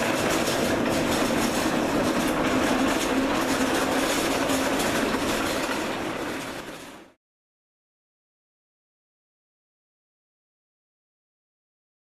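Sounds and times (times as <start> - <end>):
cart wheels rolling and rattling: 0.0 - 7.2.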